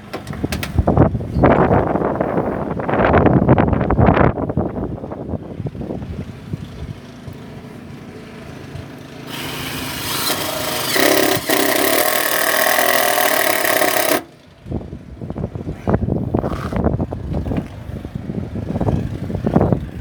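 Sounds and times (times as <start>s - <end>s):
wind buffeting microphone: 0.0s - 7.9s, 13.1s - 20.0s
power drill running: 9.2s - 14.4s.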